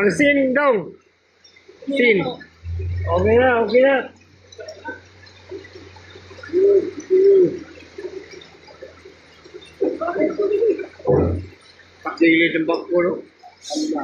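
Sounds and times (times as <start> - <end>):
faint low hum: 0.0 - 14.0
bird cooing: 6.3 - 8.4.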